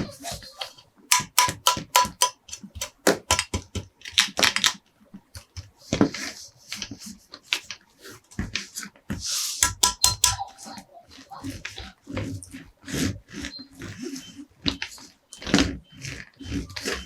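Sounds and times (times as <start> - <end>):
hard plastic clicking and tapping: 0.6 - 4.8, 9.6 - 10.4.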